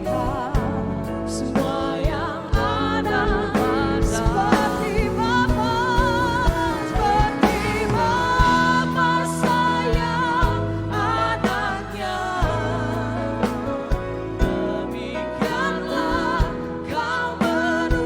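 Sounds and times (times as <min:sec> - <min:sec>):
person singing with vibrato: 0:00.0 - 0:18.0
steady bass: 0:00.0 - 0:18.0
drum beat: 0:02.6 - 0:10.6.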